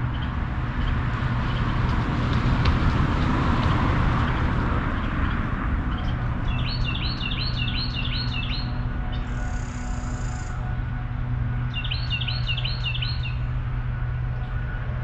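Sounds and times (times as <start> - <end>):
low outdoor rumble: 0.0 - 15.0
songbird chirping: 5.9 - 10.6, 11.7 - 13.4.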